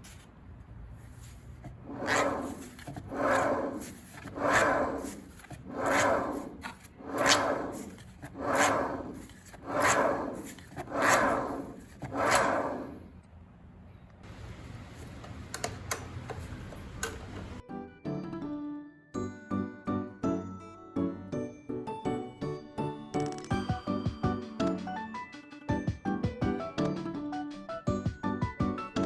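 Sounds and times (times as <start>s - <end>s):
rubbing or scraping strokes: 0.9s - 13.1s.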